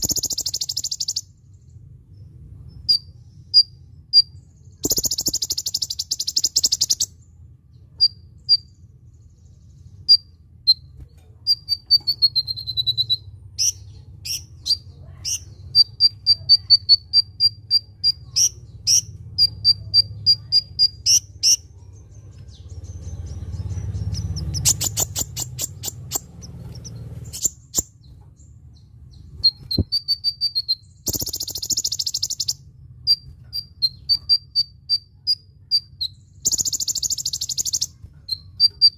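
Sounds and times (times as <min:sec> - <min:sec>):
fast buzzy bird trills: 0:00.0 - 0:01.3, 0:02.9 - 0:07.1, 0:24.0 - 0:27.9, 0:29.4 - 0:38.9
low steady hum: 0:00.0 - 0:38.9
sunbird singing: 0:00.0 - 0:38.9.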